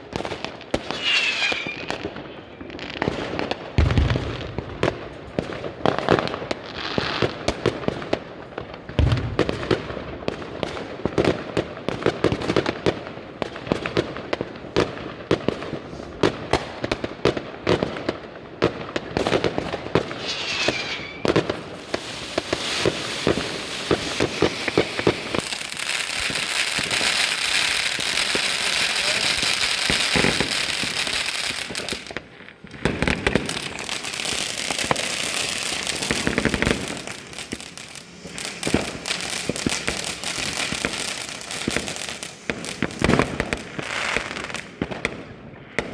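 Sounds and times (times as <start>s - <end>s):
fireworks bangs and crackles: 0.0s - 45.9s
falling firework whistle: 0.7s - 4.0s, 19.9s - 45.1s
dense crackling hiss: 18.3s - 45.0s.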